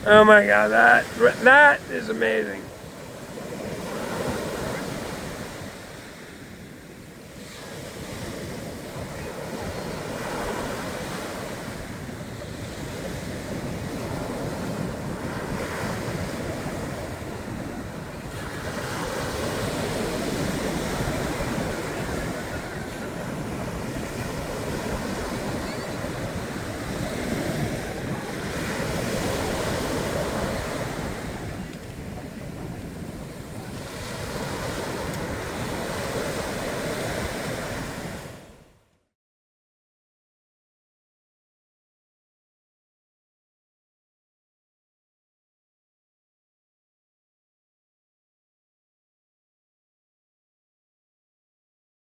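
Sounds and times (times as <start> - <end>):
surf washing onto beach: 0.0 - 38.6
wind buffeting microphone: 11.8 - 38.4.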